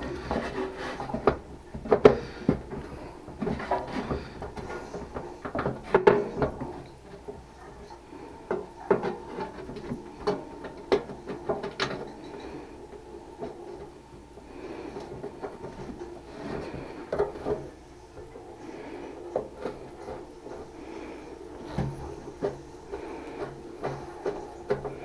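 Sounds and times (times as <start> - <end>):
tools knocking and rubbing: 0.0 - 25.0.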